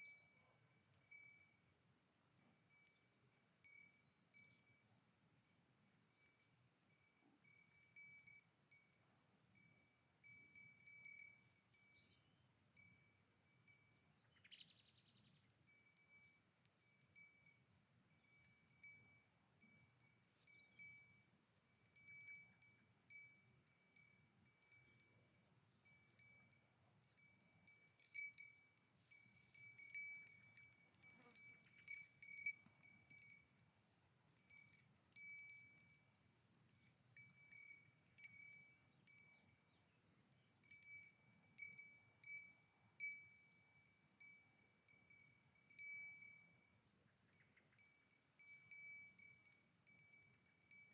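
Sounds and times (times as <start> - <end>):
cow bell ringing: 0.0 - 14.3, 15.4 - 50.9.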